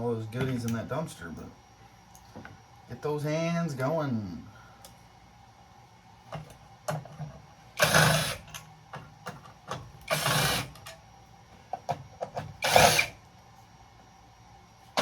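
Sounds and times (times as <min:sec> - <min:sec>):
small motorized tool bursts: 0:07.8 - 0:08.5, 0:10.1 - 0:10.8, 0:12.6 - 0:13.2.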